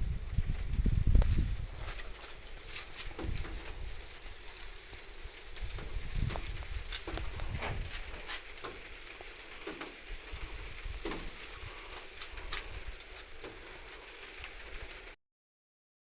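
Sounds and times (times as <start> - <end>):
wind rumbling on microphone: 0.0 - 15.1
light patters and ticks: 0.0 - 15.2.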